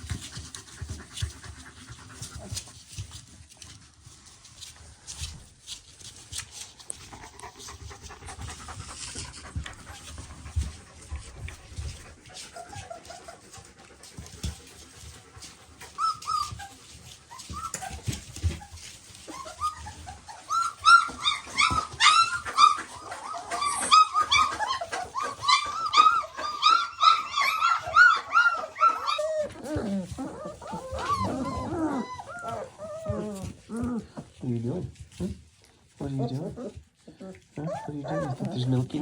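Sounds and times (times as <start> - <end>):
puppies crying: 6.4 - 34.4, 35.9 - 39.0.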